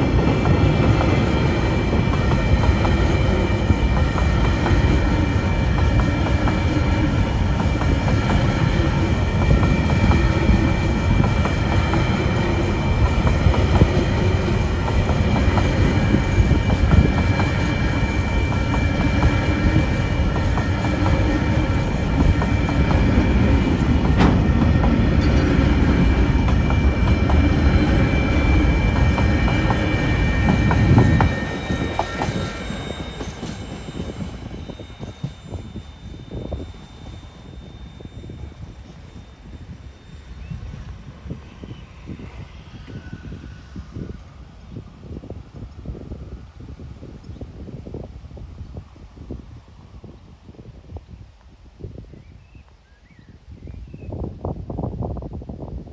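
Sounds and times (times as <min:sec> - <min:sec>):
freight train wheel clatter: 0:00.0 - 0:38.4
high wheel squeal: 0:01.7 - 0:44.2.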